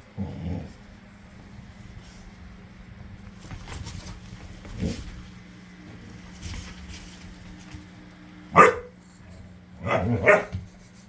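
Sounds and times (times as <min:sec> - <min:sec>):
dog barking: 0:08.5 - 0:09.0, 0:09.8 - 0:10.6.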